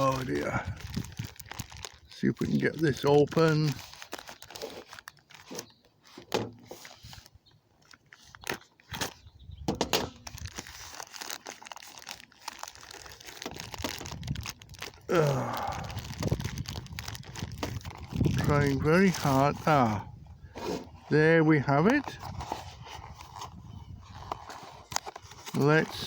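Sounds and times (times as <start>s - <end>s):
packaging being cut and torn: 0.0s - 7.1s, 10.2s - 20.0s.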